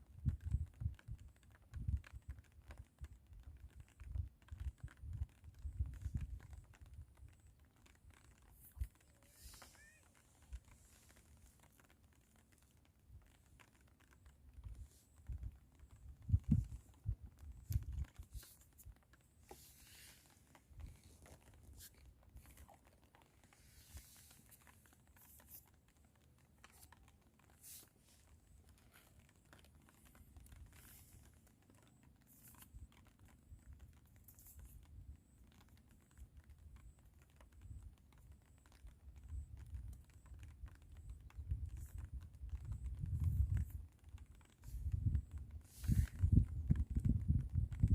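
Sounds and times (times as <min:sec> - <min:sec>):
small clicks and taps: 0:00.0 - 0:47.9
wind gusting against microphone: 0:14.6 - 0:18.3, 0:44.7 - 0:47.9.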